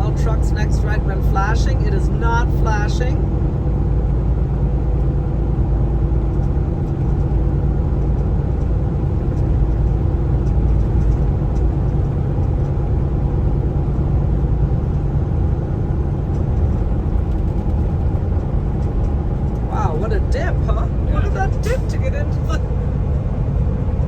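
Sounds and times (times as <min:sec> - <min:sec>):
road rumble: 0:00.0 - 0:24.0
truck engine drone: 0:00.0 - 0:24.0.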